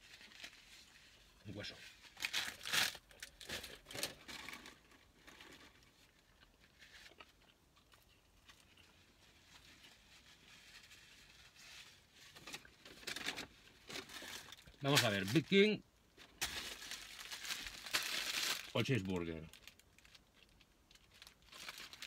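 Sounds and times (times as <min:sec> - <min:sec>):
person chewing food: 0:05.4 - 0:09.6.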